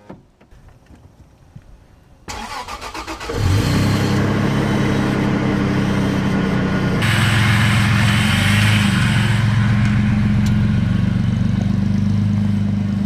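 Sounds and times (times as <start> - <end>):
electric starter cranking engine: 2.3 - 10.0
engine running steadily: 3.2 - 13.0
bright hiss: 7.0 - 10.9.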